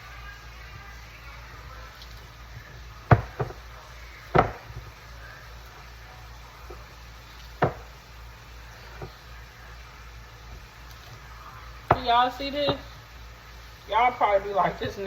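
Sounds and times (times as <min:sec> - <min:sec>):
utensils knocking on counter: 0:03.1 - 0:03.6, 0:04.3 - 0:04.9, 0:07.6 - 0:07.9, 0:11.9 - 0:12.9.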